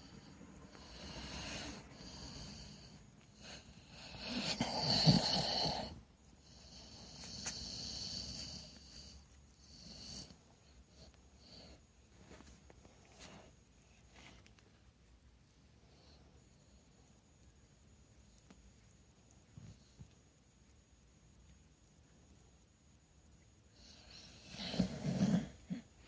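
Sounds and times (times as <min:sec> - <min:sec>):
dog snoring: 0:00.0 - 0:11.8, 0:23.8 - 0:25.9.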